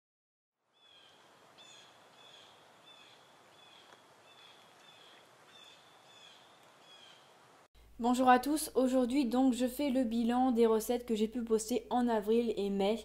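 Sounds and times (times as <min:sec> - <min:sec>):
faint bird chirping: 0:00.7 - 0:07.4
faint steady hiss: 0:00.7 - 0:11.0.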